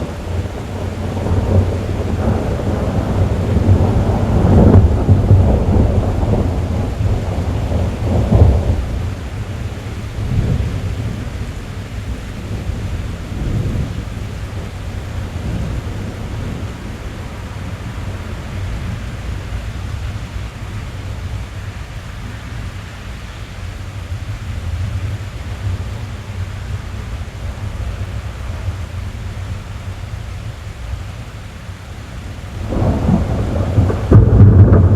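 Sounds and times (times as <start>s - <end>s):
thunder rumbling: 0.0s - 21.6s, 32.3s - 34.9s
rain on car roof and glass: 0.0s - 34.9s.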